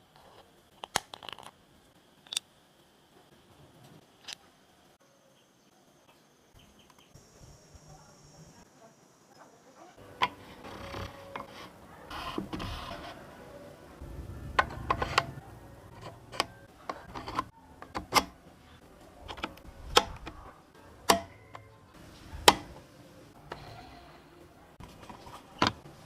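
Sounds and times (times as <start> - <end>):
tools clicking and knocking: 16.0 - 18.4, 19.2 - 21.7.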